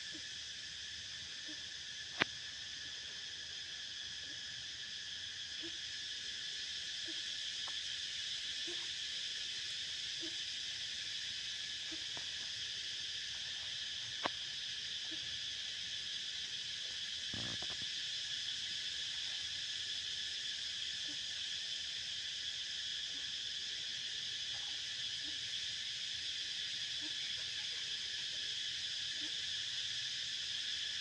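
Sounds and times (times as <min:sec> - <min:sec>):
insects buzzing: 0:00.0 - 0:31.0.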